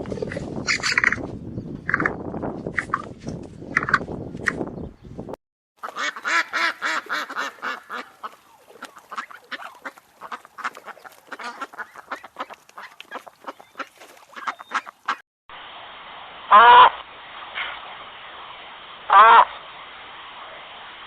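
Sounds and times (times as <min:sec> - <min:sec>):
flock of birds calling: 0:05.9 - 0:15.2.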